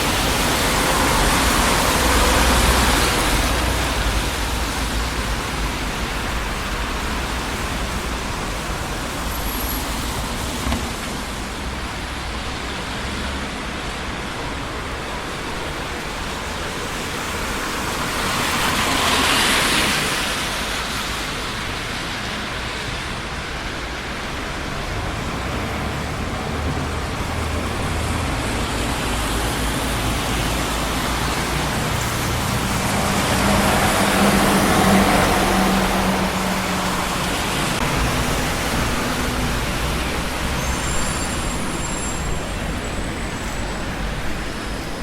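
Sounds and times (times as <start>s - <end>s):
city street traffic: 0.0s - 45.0s
vehicle passing close: 24.6s - 44.7s.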